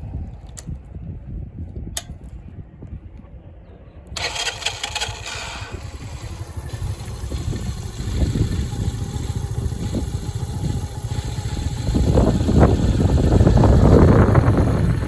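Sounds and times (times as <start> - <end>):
small engine puttering and revving: 4.2 - 15.0.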